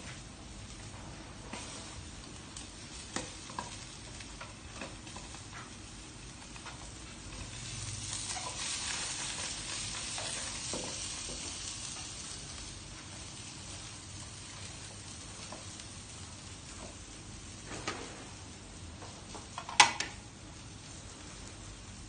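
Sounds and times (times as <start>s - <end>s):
food sizzling in oil: 0.4s - 17.6s.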